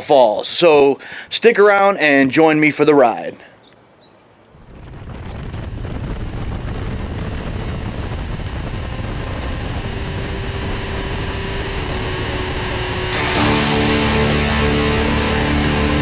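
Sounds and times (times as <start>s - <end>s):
wind rushing over microphone: 4.5s - 13.1s
motorcycle engine running: 6.2s - 15.8s.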